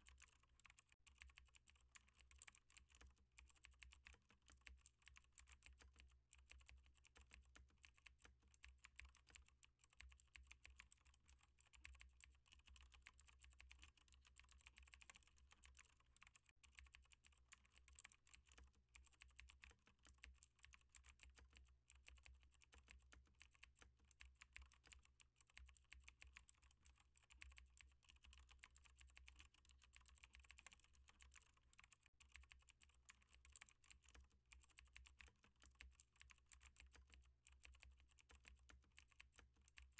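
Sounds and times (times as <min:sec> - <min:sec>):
typing on computer keyboard: 0:00.0 - 0:39.9.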